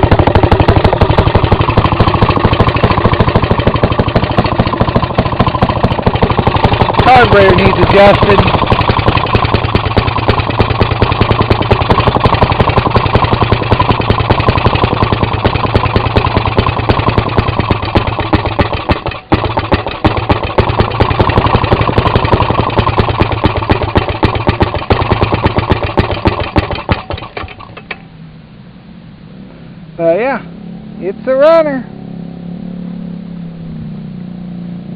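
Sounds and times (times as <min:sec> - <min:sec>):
two-stroke engine running: 0:00.0 - 0:28.3
man talking: 0:07.0 - 0:08.6, 0:30.0 - 0:31.9.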